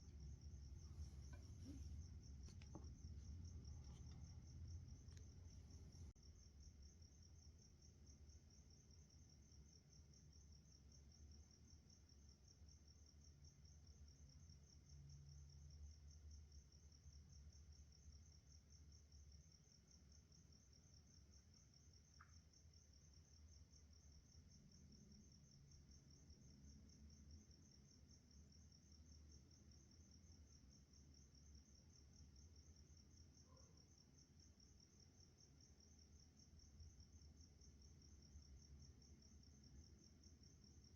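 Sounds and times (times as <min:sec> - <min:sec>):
faint low rumble: 0:00.0 - 0:06.5.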